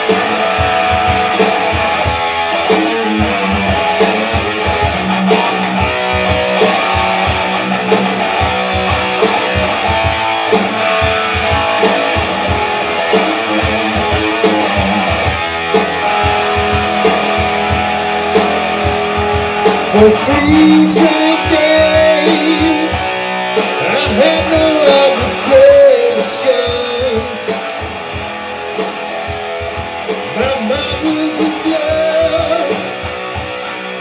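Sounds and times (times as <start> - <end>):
electric guitars: 0.0 - 34.0
steady drum beat: 0.0 - 34.0.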